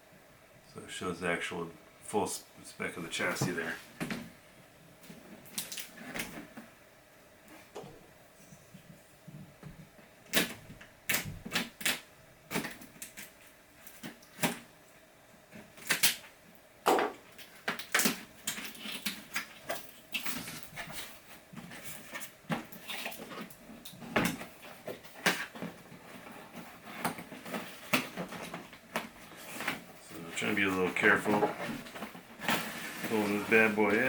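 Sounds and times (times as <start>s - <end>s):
cardboard and plastic packaging handled: 3.1s - 4.3s, 17.2s - 34.0s.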